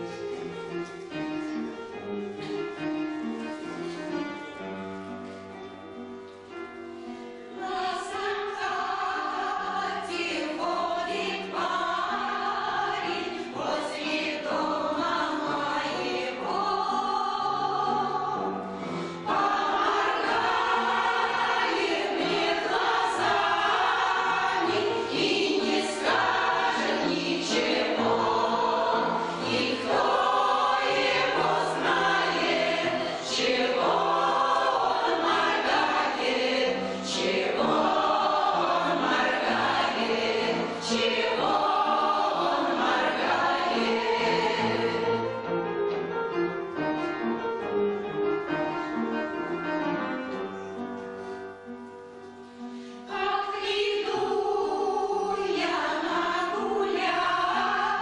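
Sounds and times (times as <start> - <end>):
choir singing: 7.5 - 45.5, 53.1 - 58.0.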